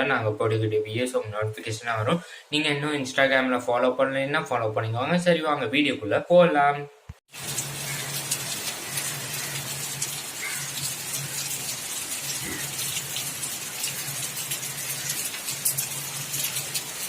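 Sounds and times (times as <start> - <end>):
heavy rain falling: 7.3 - 17.0.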